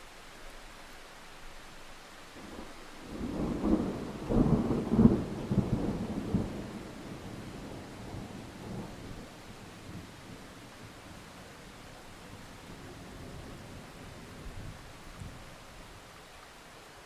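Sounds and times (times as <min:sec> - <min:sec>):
steady rain: 0:00.0 - 0:17.0
thunder rolling: 0:02.4 - 0:11.2.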